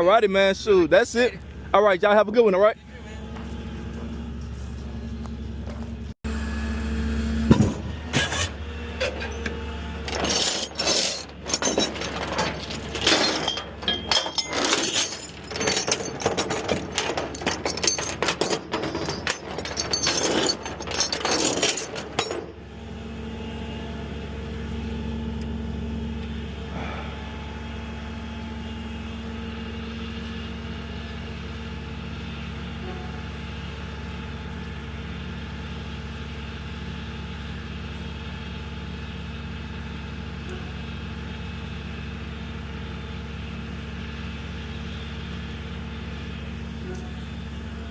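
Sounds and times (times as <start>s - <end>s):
truck engine running: 0.0s - 47.9s
clattering and knocking: 10.1s - 22.6s.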